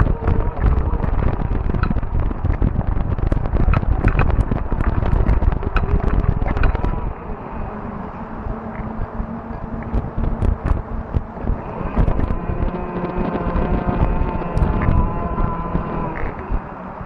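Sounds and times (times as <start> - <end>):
bike rattling clicks: 0.0 - 7.1
tyres rumbling on rough trail: 0.0 - 17.0
wind on microphone: 0.0 - 17.0.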